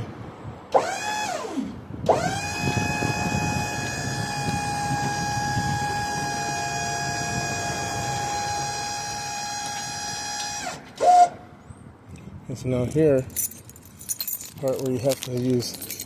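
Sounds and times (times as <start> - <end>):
hydraulic pump motor whining: 0.7 - 11.4.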